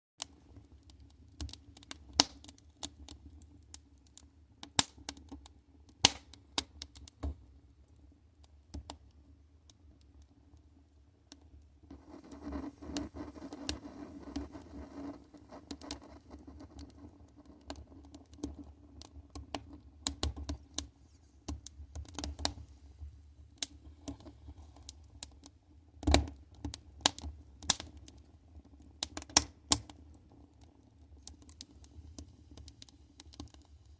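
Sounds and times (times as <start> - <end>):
fire crackling and popping: 0.2 - 33.9
flame rushing: 11.9 - 17.7.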